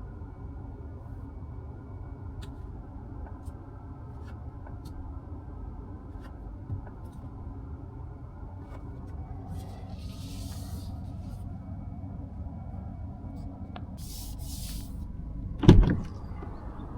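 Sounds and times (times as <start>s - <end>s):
car cabin rumble: 4.6s - 16.9s.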